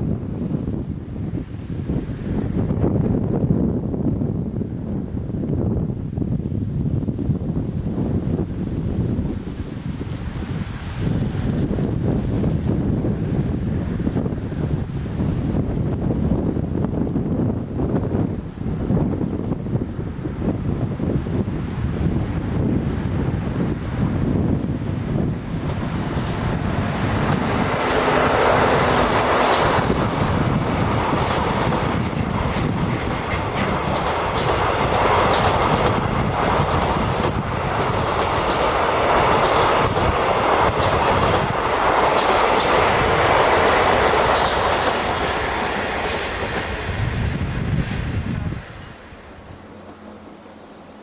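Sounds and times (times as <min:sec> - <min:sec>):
freight train rolling rush: 0:00.0 - 0:51.0
wheels clicking over rail joints: 0:24.0 - 0:47.0.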